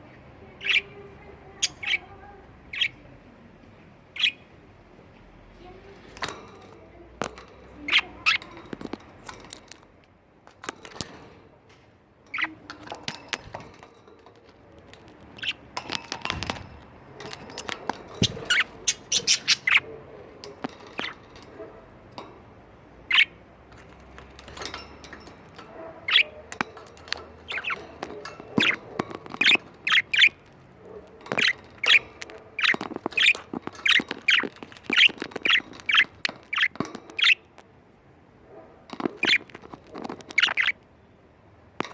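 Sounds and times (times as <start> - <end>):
budgerigars chirping and squawking: 0.5 - 3.1, 4.1 - 4.5, 7.2 - 9.0, 12.3 - 13.8, 14.9 - 16.6, 17.2 - 22.3, 23.0 - 37.6, 38.9 - 40.8.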